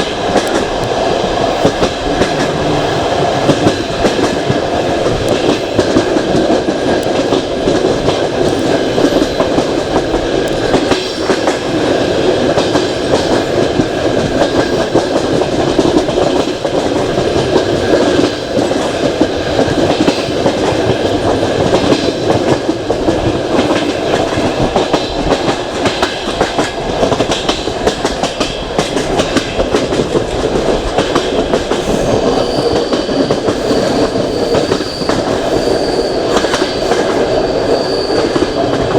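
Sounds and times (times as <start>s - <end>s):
train wheel rumble and clatter: 0.0s - 38.9s
faint high wheel squeal: 31.9s - 38.9s.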